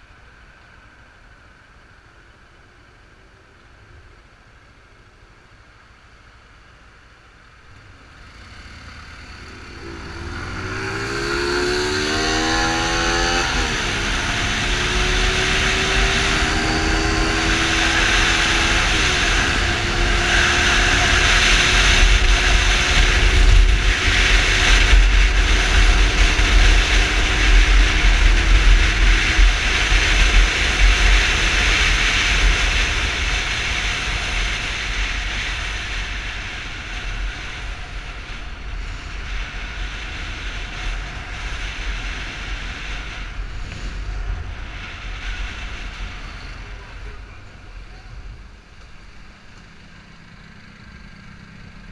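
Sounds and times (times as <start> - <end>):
motorcycle engine accelerating: 7.7 - 51.9
wind rumble on microphone: 9.0 - 49.3.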